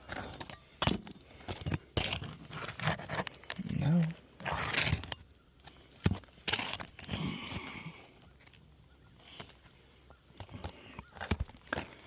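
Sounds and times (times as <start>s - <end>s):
shingles scraping and rustling: 0.0s - 3.5s, 6.0s - 7.2s.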